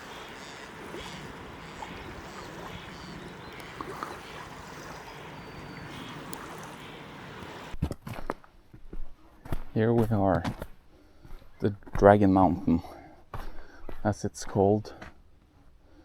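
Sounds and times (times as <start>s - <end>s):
faint bird calls: 0.0s - 7.8s
sea waves washing on shore: 0.0s - 7.8s.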